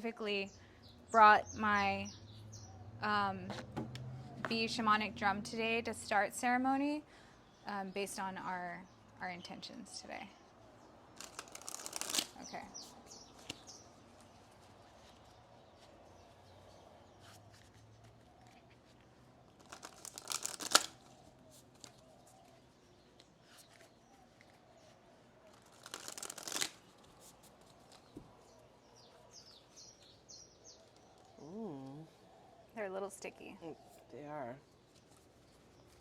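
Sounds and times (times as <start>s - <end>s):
cards being shuffled: 11.2s - 16.0s, 17.2s - 22.6s, 25.5s - 28.4s.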